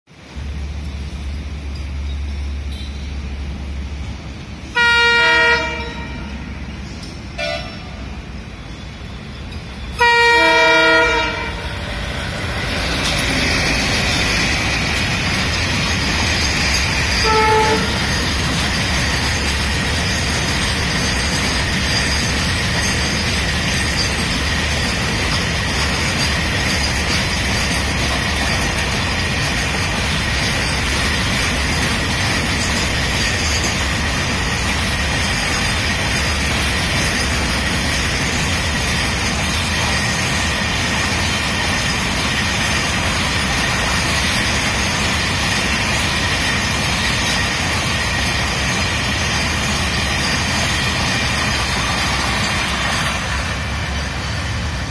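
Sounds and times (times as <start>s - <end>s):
train wagons rolling on rails: 0.1s - 54.9s
locomotive horn blast: 4.8s - 6.4s, 7.4s - 8.0s, 10.0s - 11.7s, 17.2s - 18.0s.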